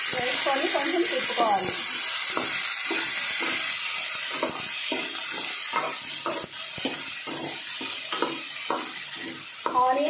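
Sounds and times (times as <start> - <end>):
vegetables sizzling in oil: 0.0 - 10.0
spoon scraping and knocking pot: 4.3 - 9.9.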